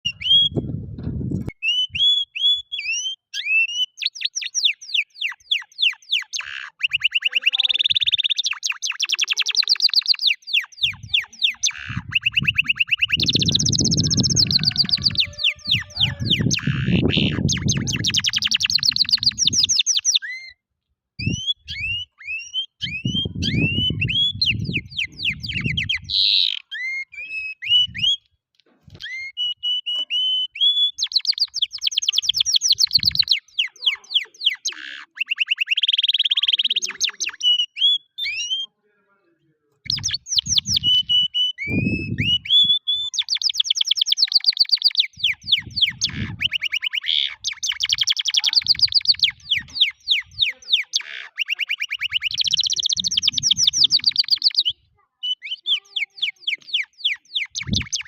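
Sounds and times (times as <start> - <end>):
canary singing trills: 0.0 - 0.7, 1.4 - 20.6, 21.2 - 28.2, 28.9 - 38.8, 39.8 - 58.0
low muffled sounds: 0.5 - 1.5.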